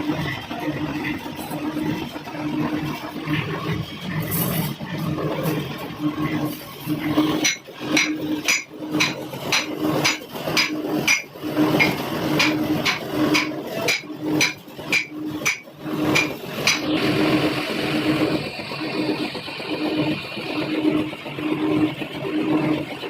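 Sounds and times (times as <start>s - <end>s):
hammer striking metal: 7.4s - 16.9s.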